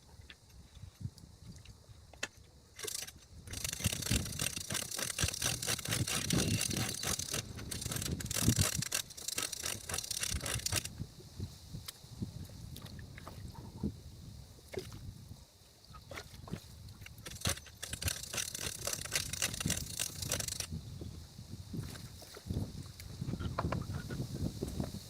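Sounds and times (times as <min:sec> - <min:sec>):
knocks and rattles: 0:02.2 - 0:10.9, 0:17.1 - 0:20.7.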